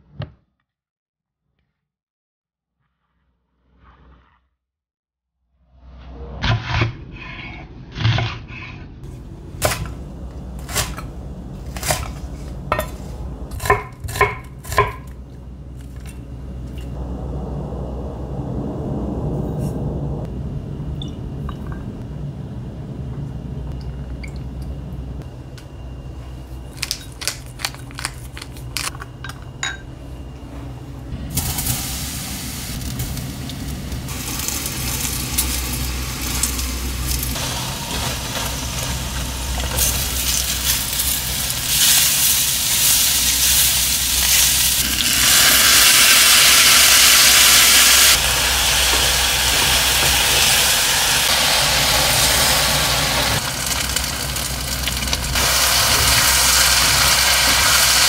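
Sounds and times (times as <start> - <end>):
low steady hum: 9.0 - 58.0
mushrooms sizzling in hot oil: 34.1 - 58.0.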